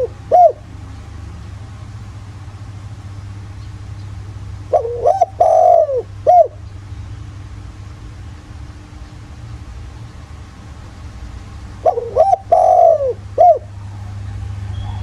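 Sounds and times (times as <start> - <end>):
dove cooing: 0.0 - 0.7, 4.7 - 6.6, 11.7 - 15.0
low steady hum: 0.0 - 15.0.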